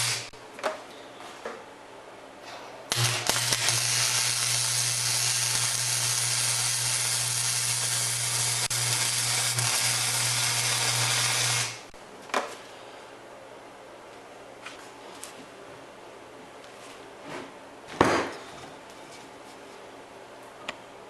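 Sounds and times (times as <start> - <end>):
arc welding crackling hiss: 0.0 - 0.3, 2.9 - 11.9
low electrical hum: 0.0 - 21.0.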